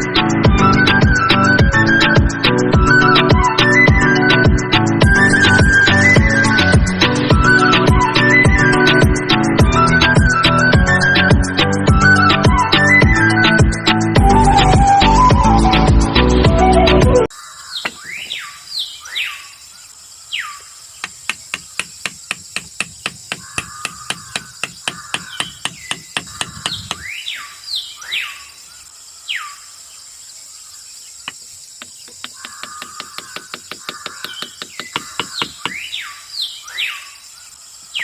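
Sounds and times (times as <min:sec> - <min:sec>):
small birds chirping: 0:17.3 - 0:38.0
sharp evenly spaced clicks: 0:21.0 - 0:27.1, 0:31.3 - 0:35.9.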